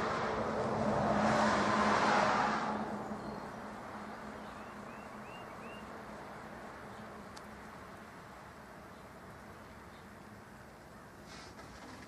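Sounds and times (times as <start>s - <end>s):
car passing: 0.0s - 8.7s.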